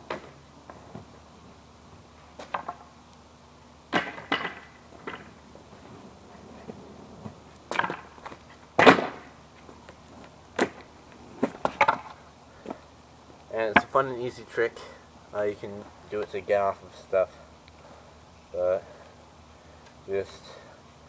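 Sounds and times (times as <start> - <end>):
skateboard deck clattering on ground: 2.4 - 2.9, 3.9 - 9.3, 10.6 - 12.2.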